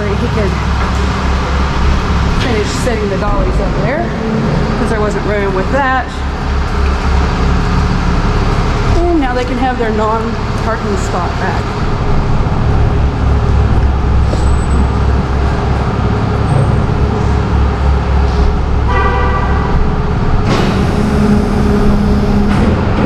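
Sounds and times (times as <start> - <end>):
truck engine rumbling: 0.0 - 23.0
horn toot: 18.8 - 19.9.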